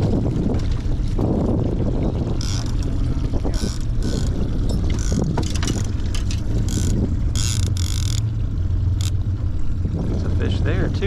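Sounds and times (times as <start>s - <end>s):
boat motor rumbling: 0.0s - 11.0s
wind buffeting microphone: 0.0s - 11.0s.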